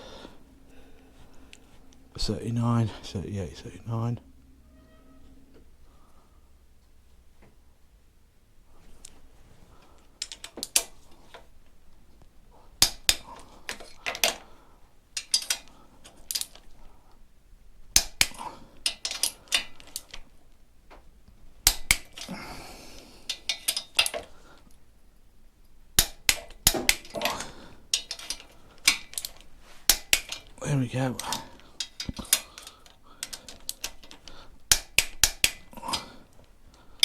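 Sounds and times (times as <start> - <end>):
torque wrench clicking: 12.8 - 14.3, 26.0 - 30.5, 31.2 - 35.8.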